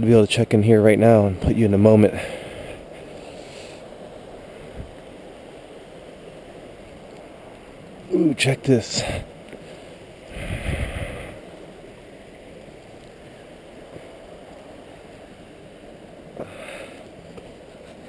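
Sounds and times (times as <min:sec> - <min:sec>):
click and rustle of handling: 0:17.0 - 0:18.0.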